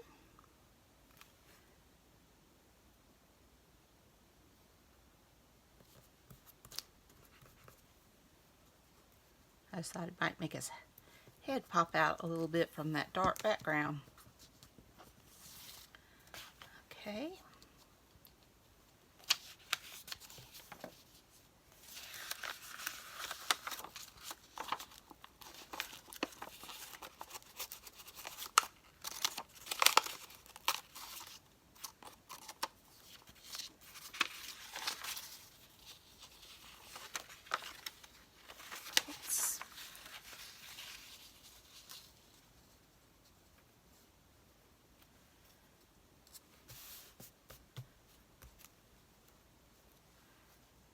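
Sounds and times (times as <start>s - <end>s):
paper crinkling and tearing: 21.8s - 42.3s.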